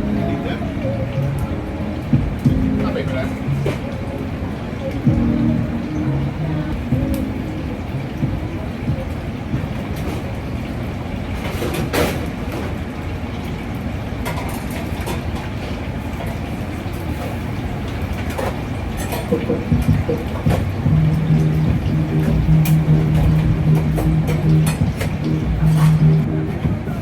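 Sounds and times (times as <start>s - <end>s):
steady low tone: 0.0s - 9.7s, 20.6s - 27.0s
low mechanical drone: 0.0s - 9.9s, 19.7s - 27.0s.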